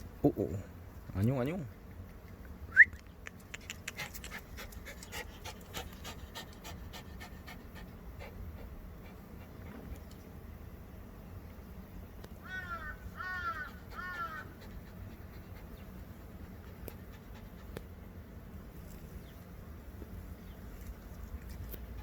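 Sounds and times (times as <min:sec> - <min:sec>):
low steady background hum: 0:00.0 - 0:22.0
crow cawing: 0:12.4 - 0:14.5.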